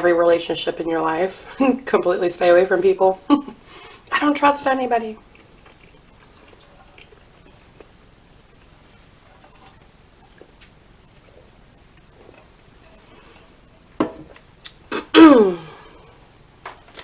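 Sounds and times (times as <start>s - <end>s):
mouth and eating noises: 5.2s - 9.6s, 10.2s - 12.6s, 14.5s - 15.1s.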